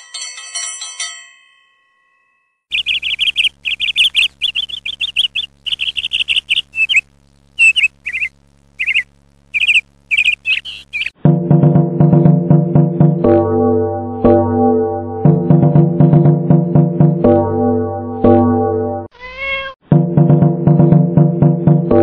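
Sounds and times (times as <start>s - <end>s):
songbird chirping: 2.7s - 11.2s
music: 11.2s - 19.1s, 19.9s - 22.0s.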